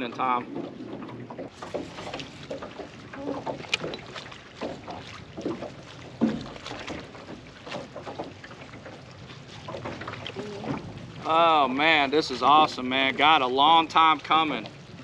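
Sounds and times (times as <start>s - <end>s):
light knocks and ticks: 0.0s - 9.0s.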